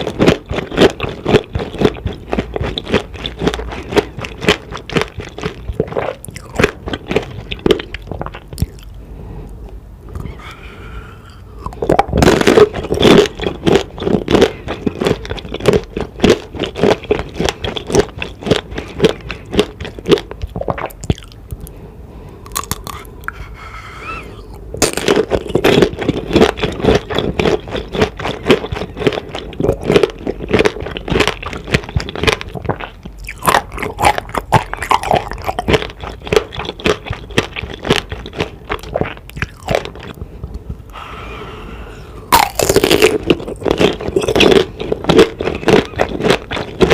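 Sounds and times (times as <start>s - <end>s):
crunchy candy chewing: 0.0s - 9.0s, 10.1s - 21.8s, 22.4s - 41.0s, 42.3s - 46.9s.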